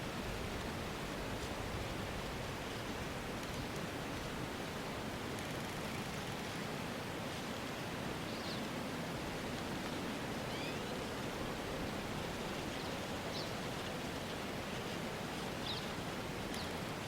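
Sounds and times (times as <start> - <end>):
wind through trees: 0.0 - 17.0
faint bird chirps: 10.5 - 11.0.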